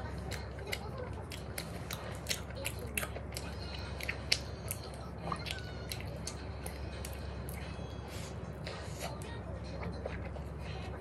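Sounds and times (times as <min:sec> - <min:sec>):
steady low hum: 0:00.0 - 0:11.0
chewing mouth clicks: 0:00.1 - 0:07.6.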